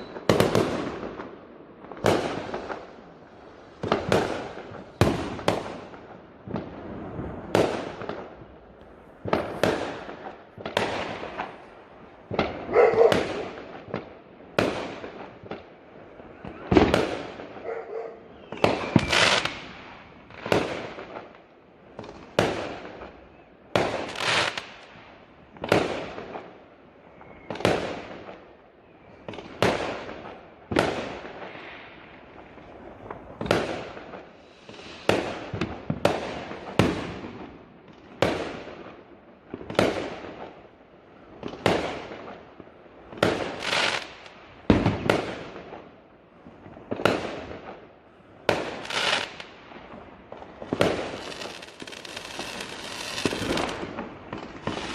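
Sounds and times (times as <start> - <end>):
fireworks banging: 0.0 - 15.7, 48.4 - 54.9.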